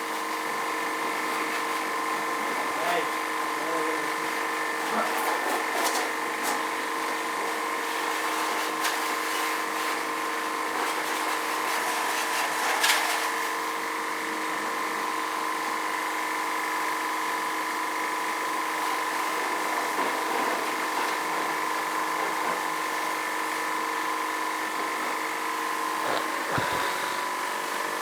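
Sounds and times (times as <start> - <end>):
water jet pump whining: 13.5 - 28.0
water spray hissing: 25.9 - 27.4.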